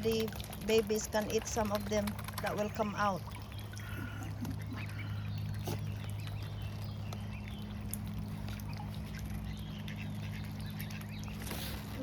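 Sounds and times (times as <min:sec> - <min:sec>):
waterfowl calling: 0:03.2 - 0:12.0.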